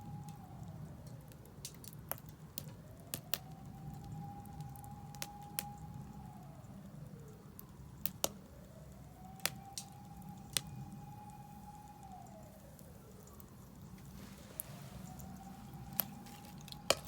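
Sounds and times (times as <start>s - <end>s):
wood fire crackling: 0.0s - 17.0s
low steady rumble: 10.2s - 17.0s.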